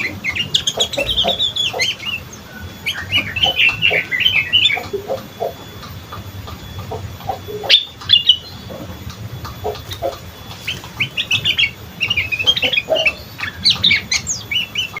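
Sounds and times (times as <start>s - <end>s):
bird chattering high chirps: 0.0s - 15.0s.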